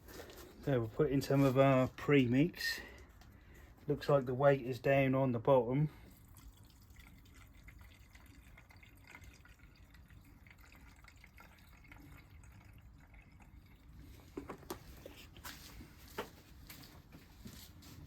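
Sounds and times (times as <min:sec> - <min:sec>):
fuel trickling into tank: 0:05.8 - 0:15.4.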